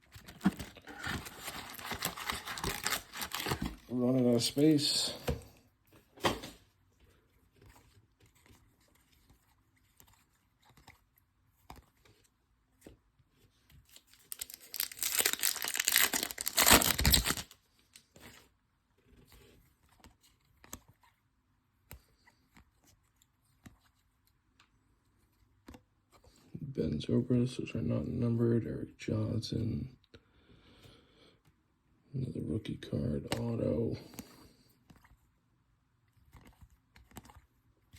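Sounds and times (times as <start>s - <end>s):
foil wrapper tearing: 0.4s - 3.8s, 14.1s - 17.6s.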